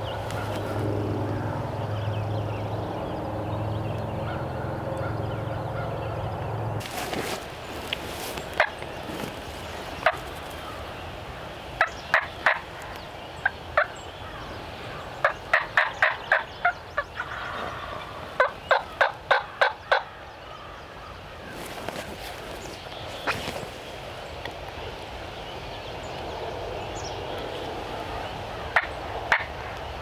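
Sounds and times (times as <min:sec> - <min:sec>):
wild turkey calling: 0:04.2 - 0:06.4, 0:09.8 - 0:21.3.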